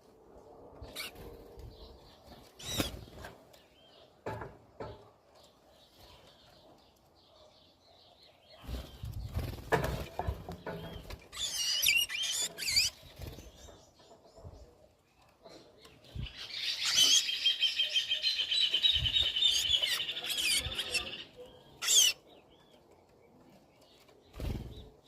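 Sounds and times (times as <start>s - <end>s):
high chirping bird calls: 2.6s - 4.1s, 10.6s - 14.2s, 15.5s - 22.7s
knocks and rustling: 9.5s - 11.3s.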